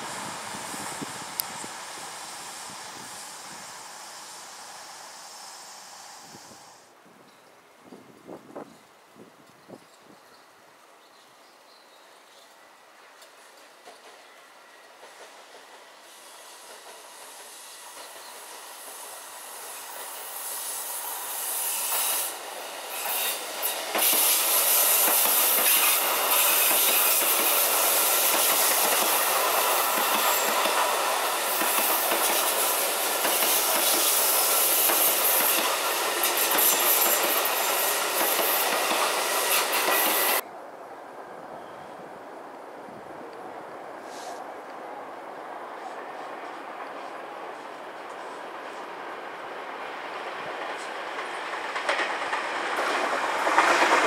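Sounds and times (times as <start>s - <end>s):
electric train passing: 0.0s - 7.0s, 12.4s - 44.0s, 44.6s - 54.0s
wheels clattering on rails: 50.3s - 54.0s.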